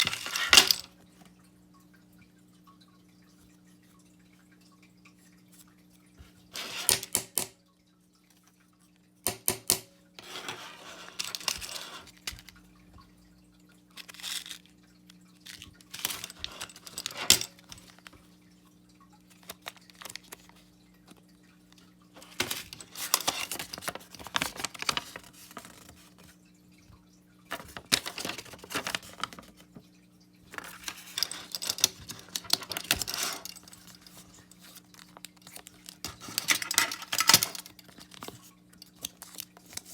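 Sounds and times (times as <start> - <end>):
faint steady hum: 0.0 - 39.9
small clicks and knocks: 9.2 - 10.6, 30.5 - 39.9
packaging rustling and tearing: 22.2 - 26.0, 27.5 - 29.5.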